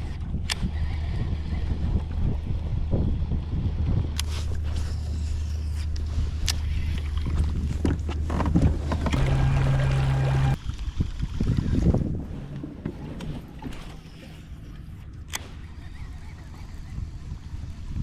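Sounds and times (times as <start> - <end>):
electric trolling motor humming: 9.0 - 11.8.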